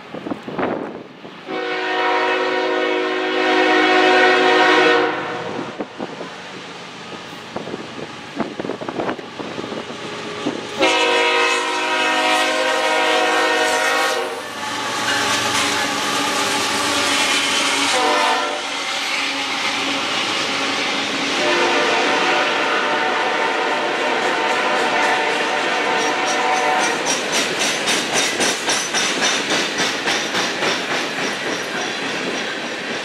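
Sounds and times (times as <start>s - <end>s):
train rumbling on rails: 0.0s - 33.0s
locomotive horn blasts: 1.5s - 5.8s, 10.8s - 16.3s, 17.0s - 18.7s, 21.4s - 27.0s
wind on microphone: 5.2s - 10.8s.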